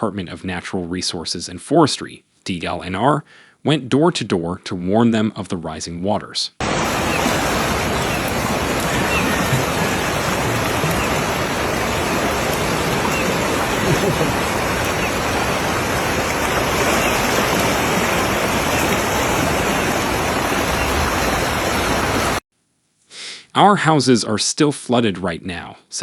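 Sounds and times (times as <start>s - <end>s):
floodwater rushing: 6.6s - 22.4s.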